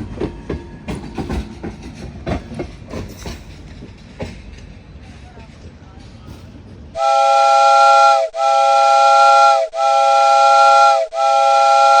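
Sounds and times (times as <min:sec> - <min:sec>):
multi-tone air horn blasts: 0:07.0 - 0:12.0.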